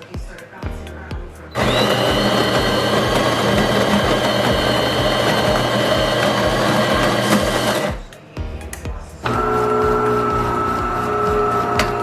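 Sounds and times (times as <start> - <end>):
coffee grinder whirring: 1.6 - 8.0, 9.2 - 12.0.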